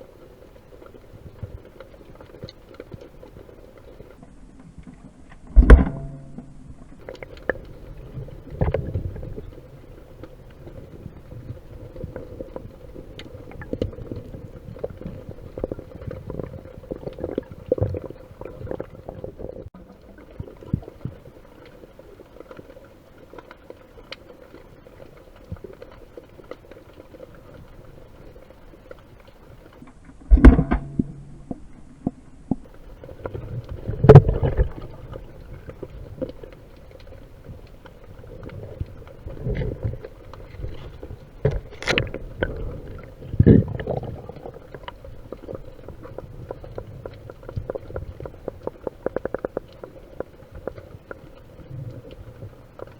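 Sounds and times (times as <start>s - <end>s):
muffled underwater surge: 27.0s - 52.9s
small clicks and knocks: 39.4s - 42.6s.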